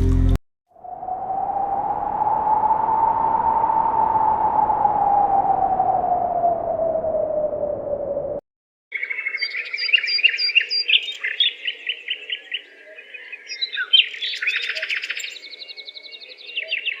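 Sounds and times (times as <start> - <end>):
songbird singing: 8.9 - 17.0.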